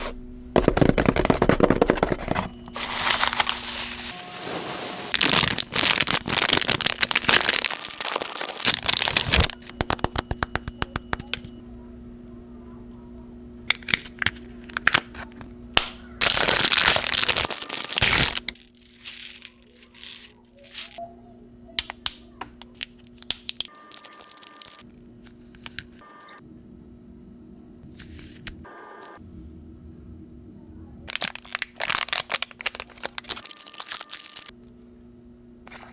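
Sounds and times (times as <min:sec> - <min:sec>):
wrapping crinkling and tearing: 0:02.7 - 0:10.2, 0:16.2 - 0:21.0, 0:31.1 - 0:34.5
faint low hum: 0:08.8 - 0:16.2, 0:24.9 - 0:33.4.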